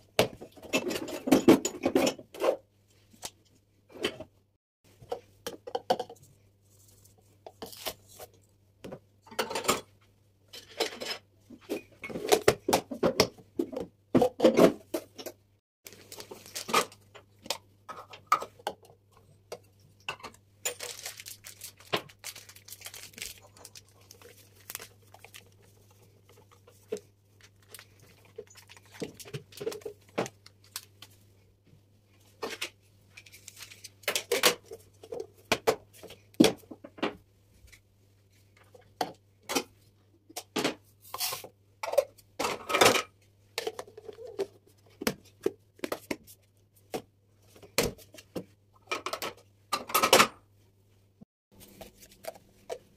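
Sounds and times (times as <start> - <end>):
packaging rustling: 15.9 - 16.8, 20.7 - 30.9.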